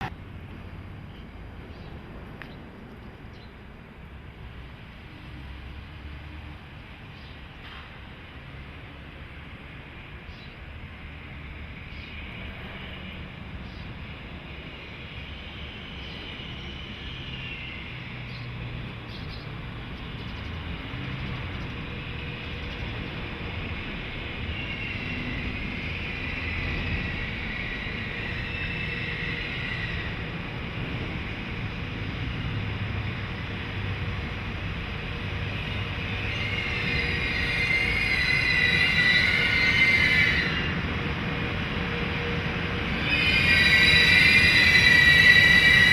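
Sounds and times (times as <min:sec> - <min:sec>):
freight train rolling: 0:00.0 - 0:45.9
high-pitched wheel squeal: 0:36.0 - 0:40.8, 0:42.9 - 0:45.9.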